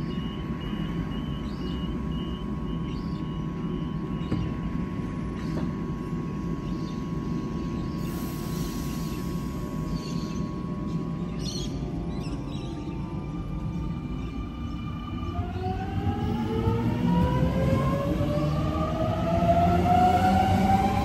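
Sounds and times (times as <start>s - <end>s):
train hum and rumble: 0.0s - 21.0s
high hiss: 8.0s - 9.7s.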